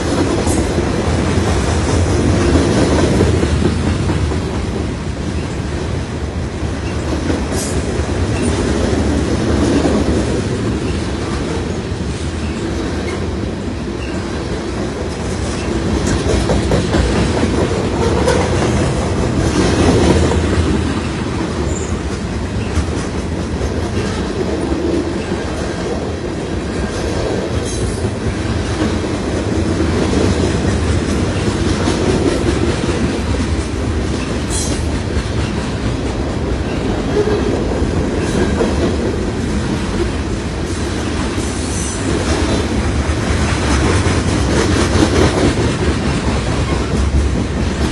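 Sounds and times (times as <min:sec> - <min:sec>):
train cars rumbling past: 0:00.0 - 0:47.9.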